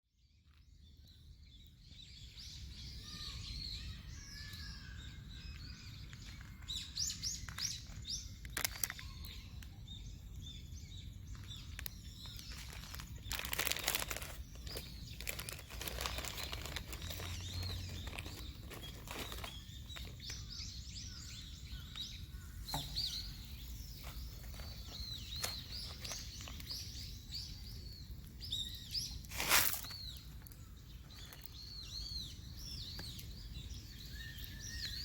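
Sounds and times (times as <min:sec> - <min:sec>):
small birds chirping: 0:00.1 - 0:35.0.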